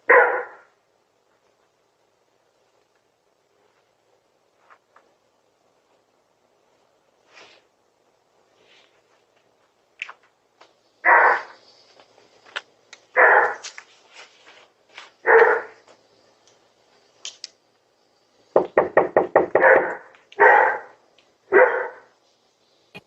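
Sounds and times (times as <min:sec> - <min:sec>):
dog barking: 0:00.0 - 0:00.7, 0:11.0 - 0:11.6, 0:13.2 - 0:13.6, 0:15.2 - 0:15.8, 0:19.5 - 0:22.2.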